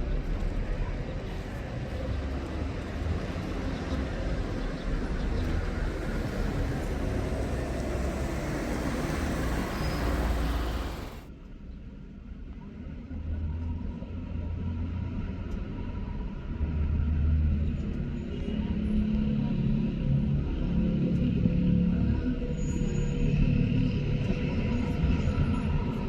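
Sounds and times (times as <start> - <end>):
engine rumble: 0.0 - 11.3.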